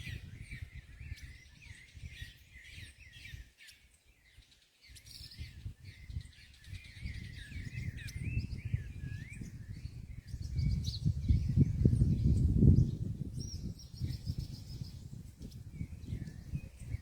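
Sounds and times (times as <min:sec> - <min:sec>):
small songbirds chirping: 0:00.0 - 0:17.0
low microphone rumble: 0:07.6 - 0:17.0.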